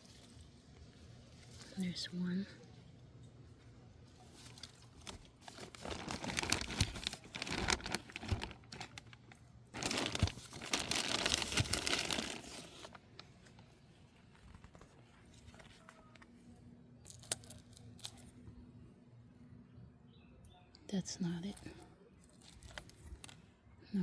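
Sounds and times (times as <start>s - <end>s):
crinkling and rustling: 4.1s - 18.4s, 21.5s - 23.5s.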